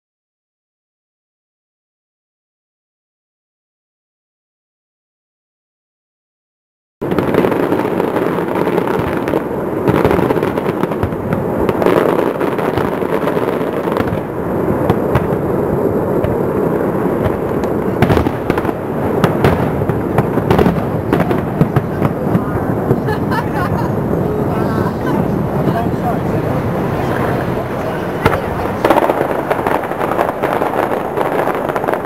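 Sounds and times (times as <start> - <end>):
fireworks crackling and banging: 7.0 - 32.0
sharp firework reports: 7.0 - 32.0.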